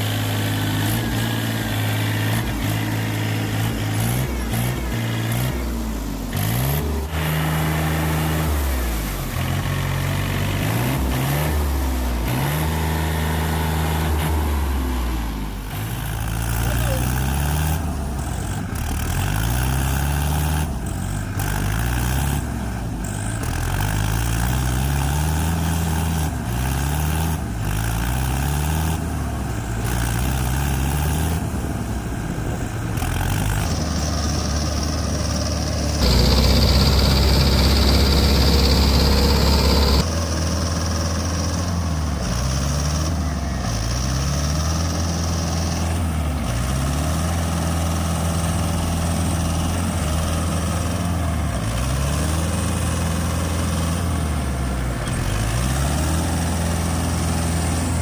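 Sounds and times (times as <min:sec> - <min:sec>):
vehicle engine revving: 0:00.0 - 0:58.0
hissing: 0:36.0 - 0:40.0.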